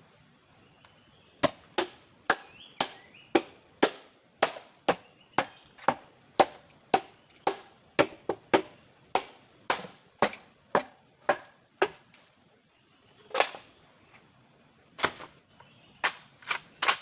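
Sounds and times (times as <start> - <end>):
blade chopping wood: 1.4 - 12.2, 13.3 - 13.6, 15.0 - 15.4, 16.0 - 17.0.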